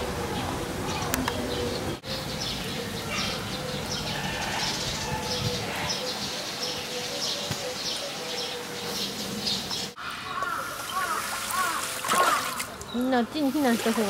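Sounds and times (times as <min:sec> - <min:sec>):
birds chirping and calling: 0:00.0 - 0:14.0
outdoor background noise: 0:00.0 - 0:14.0.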